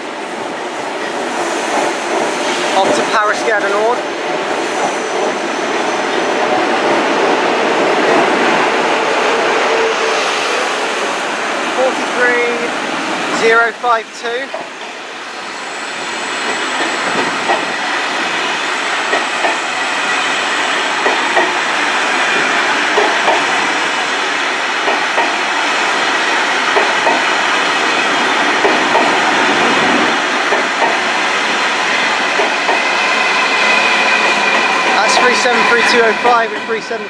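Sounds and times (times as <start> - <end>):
train coaches rumbling: 0.0 - 37.0
wheels clicking over rail joints: 21.0 - 21.6, 22.9 - 23.6.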